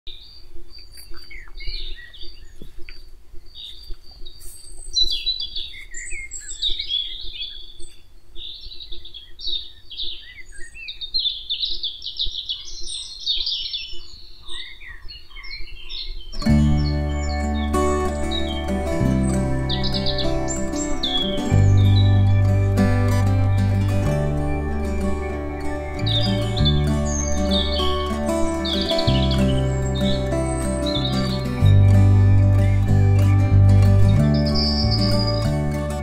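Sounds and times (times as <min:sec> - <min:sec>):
songbirds chirping and singing: 0:00.1 - 0:36.0.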